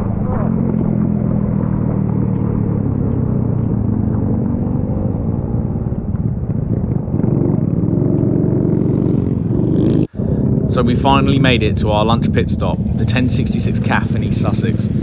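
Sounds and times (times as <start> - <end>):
small motorcycle engine running: 0.0 - 15.0
wind rush: 9.0 - 15.0.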